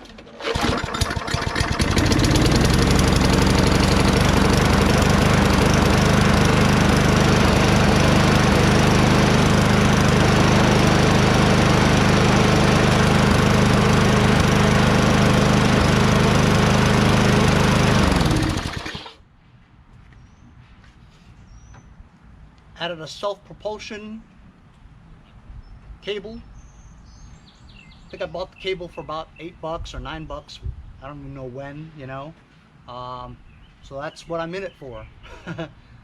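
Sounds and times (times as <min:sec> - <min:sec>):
lawn mower engine running: 0:00.0 - 0:19.2.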